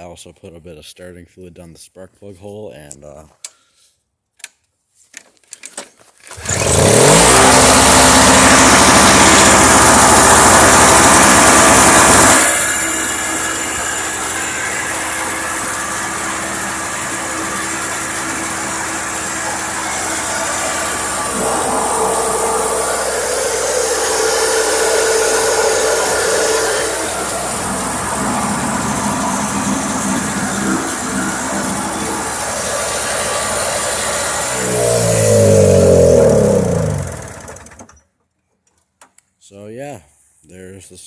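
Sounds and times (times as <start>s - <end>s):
snowblower engine running: 6.4s - 38.0s.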